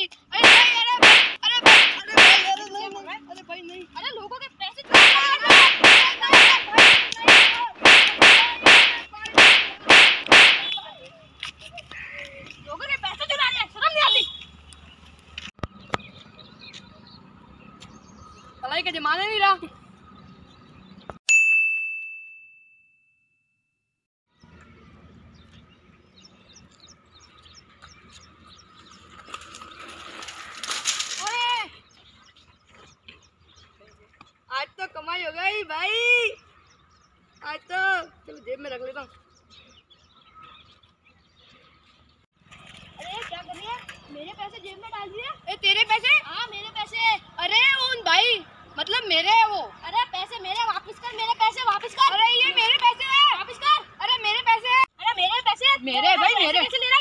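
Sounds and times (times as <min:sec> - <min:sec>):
punches and slaps: 0:00.4 - 0:02.6, 0:04.9 - 0:10.8
birds chirping: 0:03.5 - 0:21.2, 0:24.4 - 0:30.0, 0:31.5 - 0:42.2.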